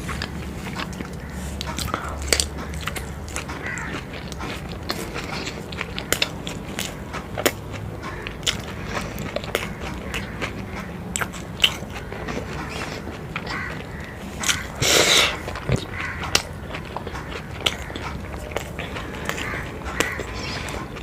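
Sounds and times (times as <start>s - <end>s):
person biting and chewing: 0.0s - 21.0s.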